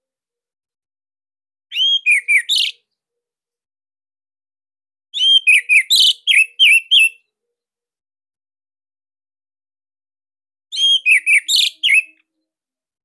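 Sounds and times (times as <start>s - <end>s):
bird singing whistled notes: 1.7s - 2.9s, 5.2s - 7.2s, 10.7s - 12.2s.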